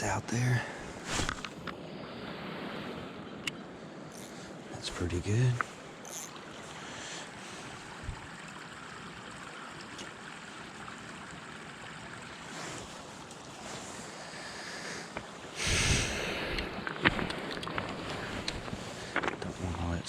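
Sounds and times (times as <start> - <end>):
river water rushing: 4.2 - 19.8.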